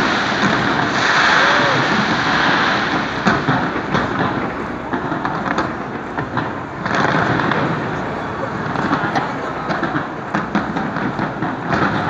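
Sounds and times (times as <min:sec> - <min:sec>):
continuous rumbling: 0:00.0 - 0:12.0
fireworks bangs and crackles: 0:00.0 - 0:12.0.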